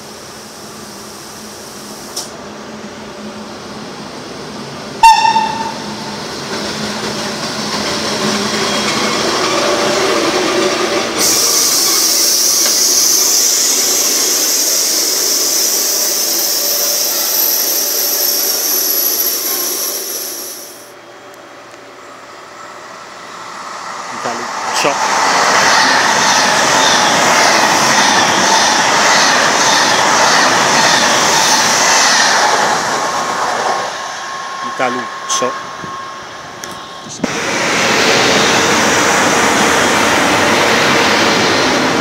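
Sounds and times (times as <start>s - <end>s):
train wheels and air rushing: 0.0s - 21.0s, 22.3s - 42.0s
loud short tone: 5.0s - 6.0s.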